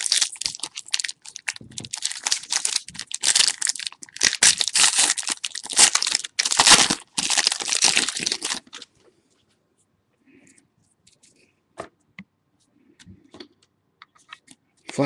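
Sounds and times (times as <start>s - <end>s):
plastic wrapper crinkling: 0.0s - 8.9s.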